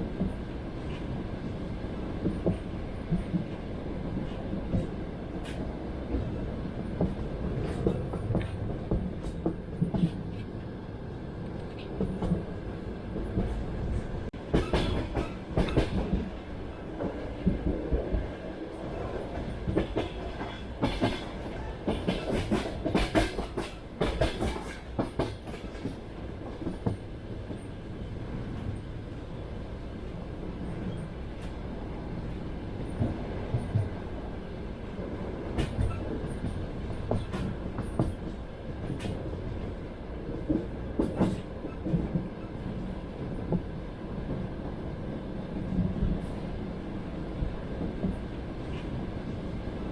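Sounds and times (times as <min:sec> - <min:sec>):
train wheels rumbling on rails: 0:00.0 - 0:49.9
wheels clacking over rail joints: 0:14.4 - 0:18.4, 0:19.1 - 0:27.6.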